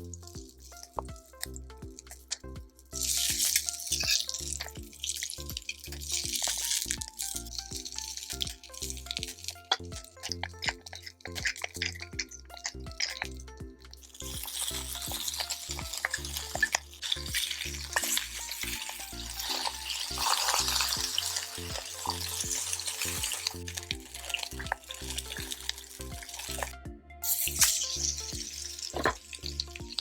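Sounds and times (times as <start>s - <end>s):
background music with a beat: 0.0s - 30.0s
meat patties sizzling: 14.1s - 30.0s.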